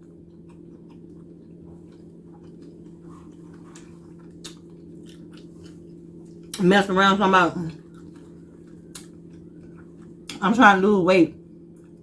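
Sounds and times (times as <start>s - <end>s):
person chewing food: 0.0s - 6.6s, 7.8s - 10.4s
steady low hum: 0.0s - 12.0s.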